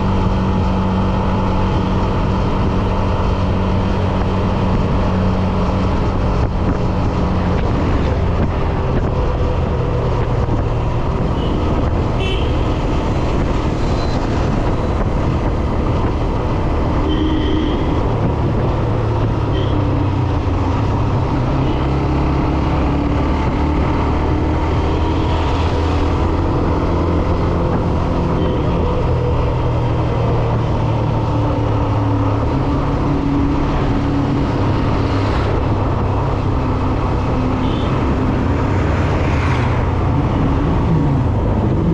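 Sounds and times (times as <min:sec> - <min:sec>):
wind rushing over microphone: 0:00.0 - 0:17.0, 0:17.8 - 0:41.9.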